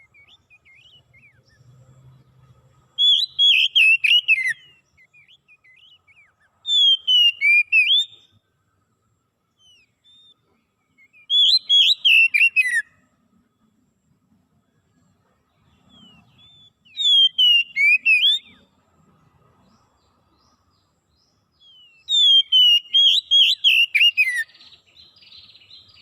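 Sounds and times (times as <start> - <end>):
soft bird chirps: 0.0 - 26.0
songbird whistled song: 0.0 - 26.0.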